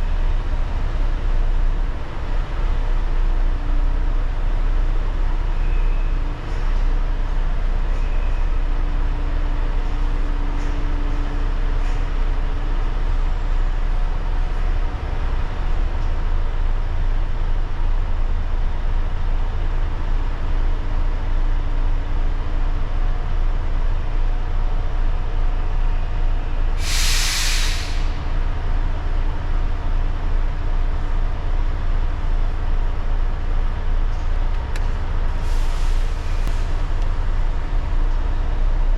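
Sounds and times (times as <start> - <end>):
truck diesel engine rumbling: 0.0 - 38.9
air brakes hissing: 26.7 - 28.4, 35.4 - 37.0.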